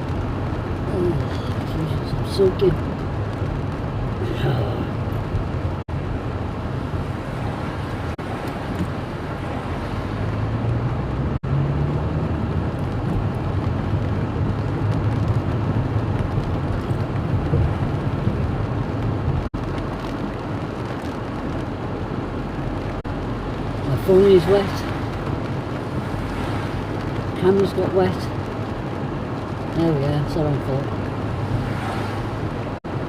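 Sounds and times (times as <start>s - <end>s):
heavy rain: 0.0s - 33.0s
wind buffeting the microphone: 12.2s - 23.9s.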